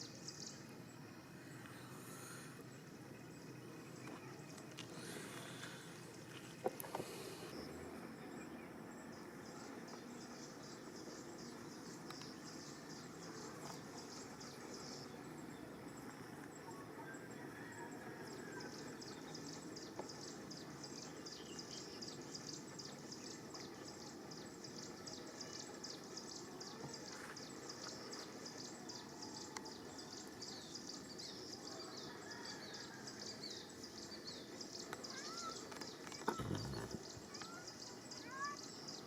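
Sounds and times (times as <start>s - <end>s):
background hiss: 0.0s - 39.0s.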